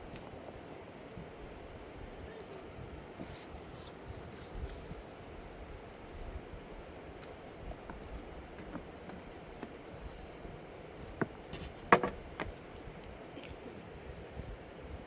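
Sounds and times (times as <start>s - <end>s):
sharp clicks and knocks: 11.2s - 12.6s.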